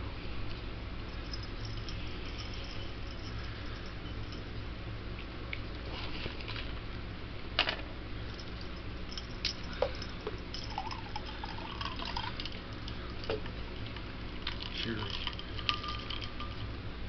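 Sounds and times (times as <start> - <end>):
liquid poured into a glass: 10.6 - 16.6.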